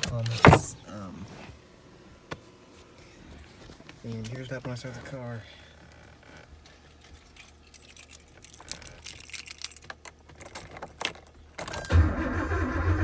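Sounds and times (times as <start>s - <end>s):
keys jangling: 7.2s - 11.2s
car starter buzzing chatter: 11.7s - 13.0s.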